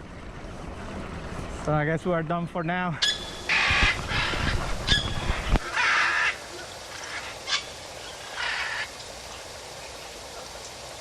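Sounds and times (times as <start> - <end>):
harsh raspy bird calls: 2.9 - 9.0.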